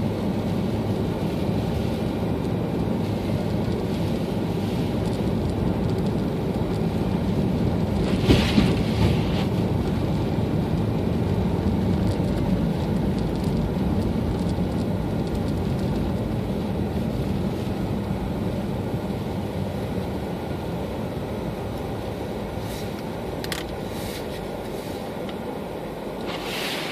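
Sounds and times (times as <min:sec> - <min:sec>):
car engine and tyre rumble: 0:00.0 - 0:26.9
brief loud rush: 0:26.2 - 0:26.9.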